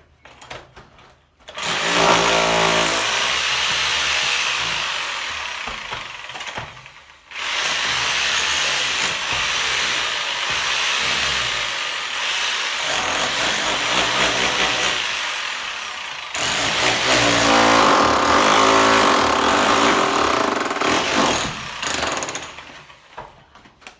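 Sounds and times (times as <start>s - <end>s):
power tool running roughly: 4.0s - 23.0s.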